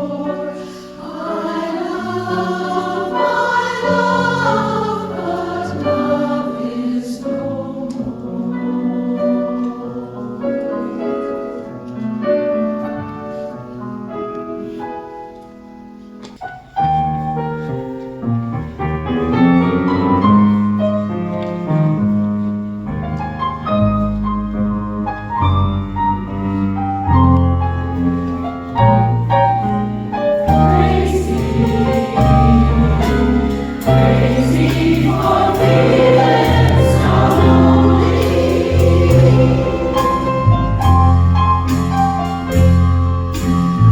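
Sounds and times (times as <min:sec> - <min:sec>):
women's chorus singing: 0:00.0 - 0:11.4, 0:30.4 - 0:41.0.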